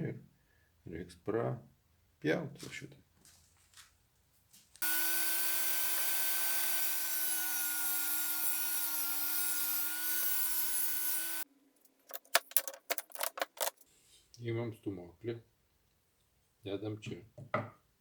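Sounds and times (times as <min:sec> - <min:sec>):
power saw cutting board: 0:04.8 - 0:11.4
knocks and clicks of handled wood: 0:11.9 - 0:13.8.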